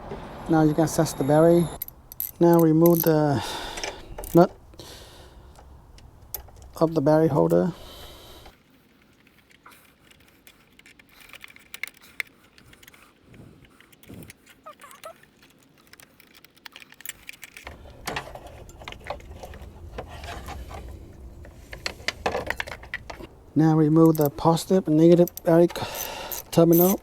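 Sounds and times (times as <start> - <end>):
metallic clicks of hand tool: 24.0 - 24.4, 25.1 - 27.0.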